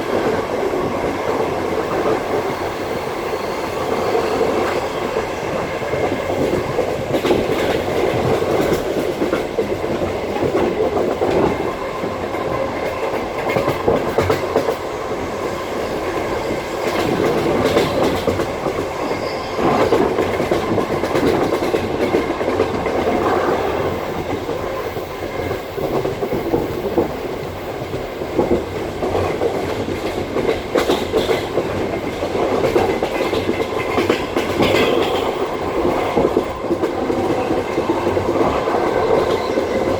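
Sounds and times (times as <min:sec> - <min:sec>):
train wheels rumbling on rails: 0:00.0 - 0:39.9
wheels clacking over rail joints: 0:28.0 - 0:39.9.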